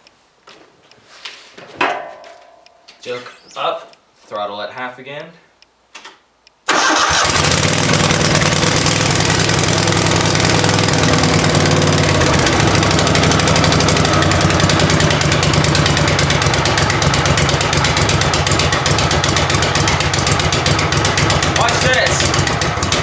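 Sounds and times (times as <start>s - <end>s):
lawn tractor engine running: 6.7s - 23.0s.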